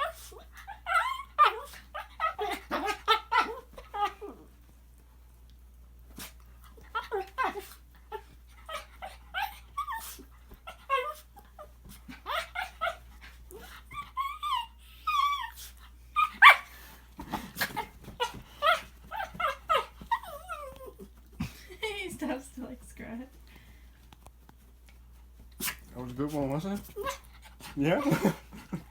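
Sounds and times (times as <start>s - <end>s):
dog whining and growling: 0.0s - 4.5s, 6.7s - 16.7s, 17.4s - 21.2s.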